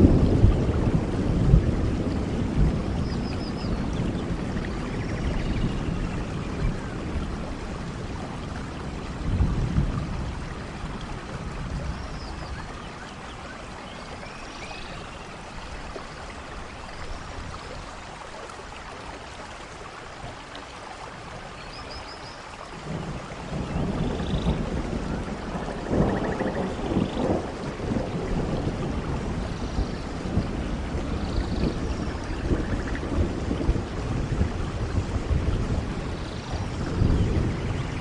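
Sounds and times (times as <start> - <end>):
distant thunder rumbles: 0.0 - 14.3, 22.8 - 38.0
steady rainfall: 0.0 - 38.0.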